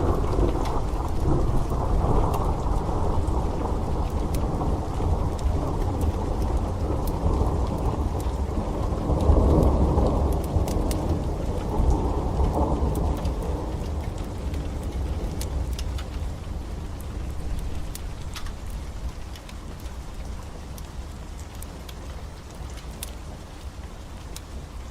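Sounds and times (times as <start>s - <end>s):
thunder rumbling: 0.0s - 20.6s
heavy rain: 0.0s - 24.9s
wood fire crackling: 0.0s - 24.9s.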